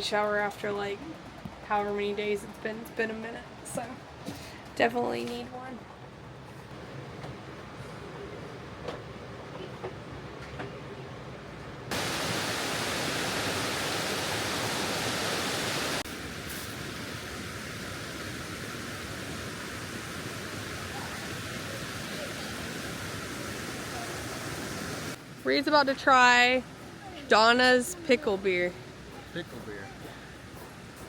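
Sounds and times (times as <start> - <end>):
loud rush of water: 11.9 - 25.2
soft rush of water: 11.9 - 29.2.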